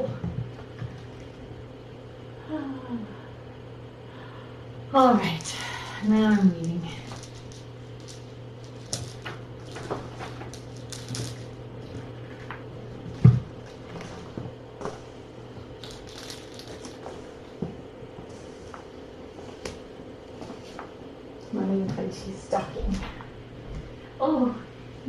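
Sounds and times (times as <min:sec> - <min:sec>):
steady low hum: 0:00.0 - 0:25.0
cat crunching dry kibble: 0:06.6 - 0:12.5, 0:15.7 - 0:17.2.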